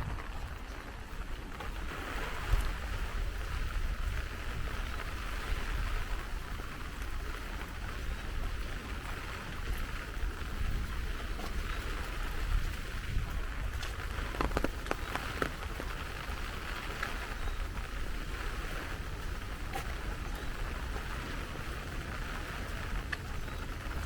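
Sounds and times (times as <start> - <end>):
heavy rain falling: 0.0 - 24.0
sharp raindrop taps: 0.0 - 24.0.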